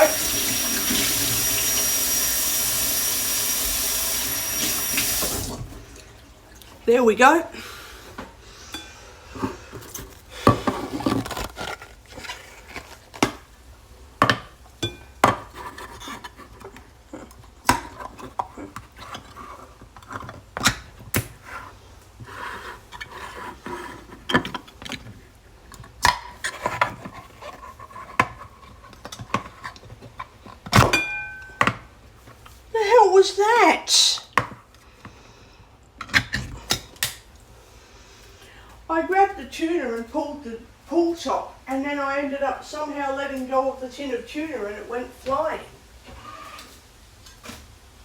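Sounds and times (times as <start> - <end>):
dishes and cutlery clinking: 8.7 - 9.0, 14.3 - 19.4, 30.8 - 31.8.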